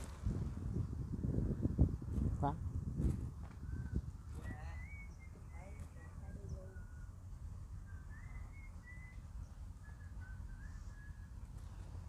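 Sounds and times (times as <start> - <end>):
whistling tune: 7.9 - 9.2, 9.8 - 11.3.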